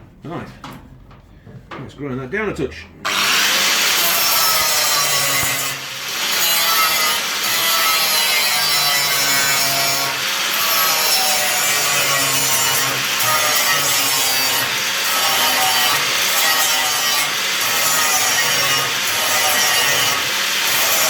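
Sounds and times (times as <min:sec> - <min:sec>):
angle grinder grinding steel: 0:03.0 - 0:21.0.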